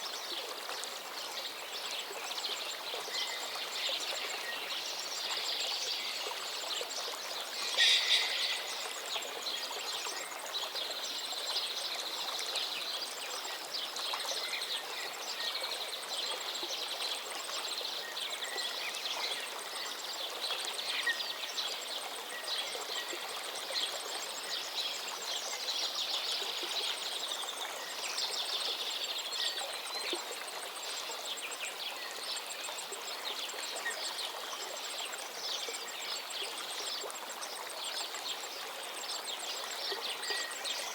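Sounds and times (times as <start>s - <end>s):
river water rushing: 2.9s - 10.2s
small birds chirping: 3.0s - 10.3s
loud bird call: 7.6s - 8.8s.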